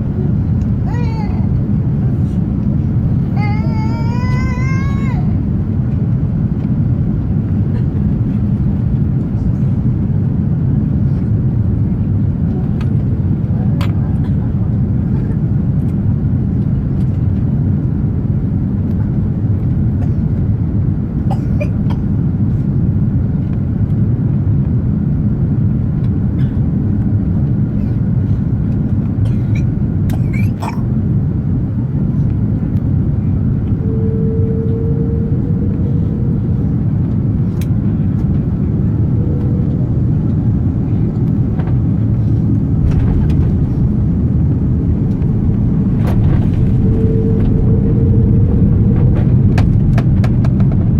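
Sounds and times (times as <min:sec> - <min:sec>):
airliner engine rumble in cabin: 0:00.0 - 0:50.9
short steady tone: 0:33.7 - 0:37.4, 0:39.1 - 0:40.4, 0:46.5 - 0:49.6.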